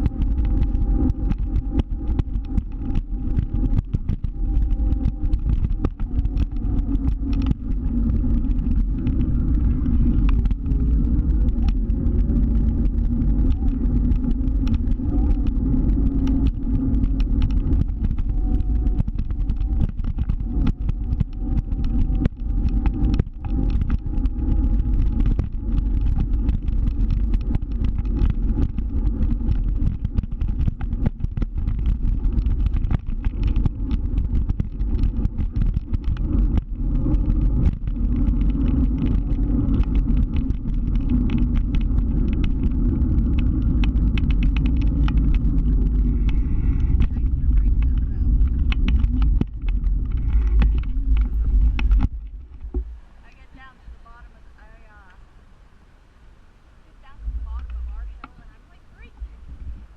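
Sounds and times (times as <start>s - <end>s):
faint scooter motor whine: 0.0s - 55.2s
short crackles and knocks: 0.0s - 55.2s, 57.0s - 59.9s
wind and road rumble on microphone: 0.0s - 59.9s.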